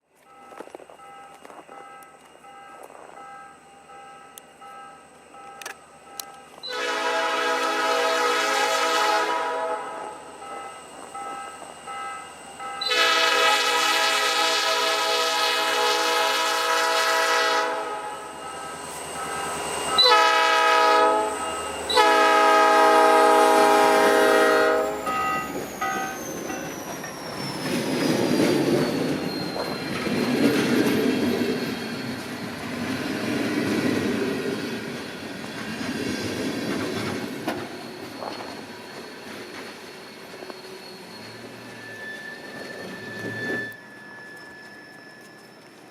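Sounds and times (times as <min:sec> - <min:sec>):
train horn blasts: 0:06.6 - 0:10.3, 0:12.8 - 0:18.4, 0:20.0 - 0:25.4
train wheels clattering on rails: 0:18.5 - 0:45.9.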